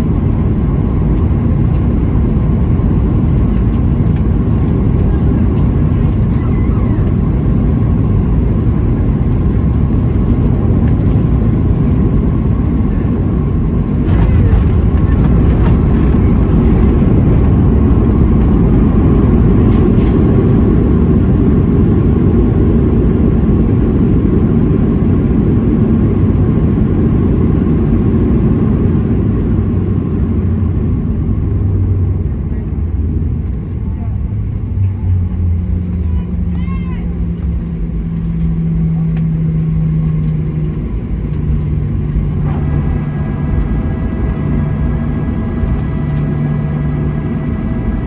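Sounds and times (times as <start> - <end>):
aircraft cabin engine roar: 0.0 - 48.0.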